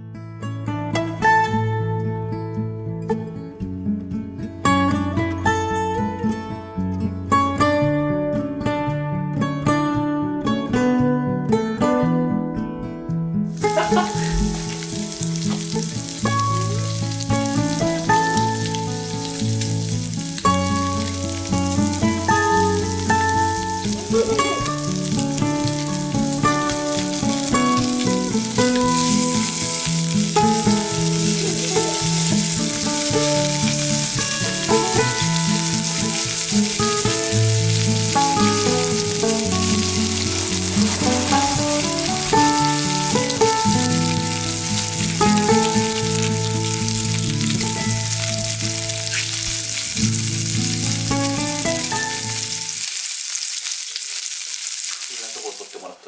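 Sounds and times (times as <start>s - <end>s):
background music: 0.7s - 52.8s
food sizzling in a pan: 13.5s - 56.0s.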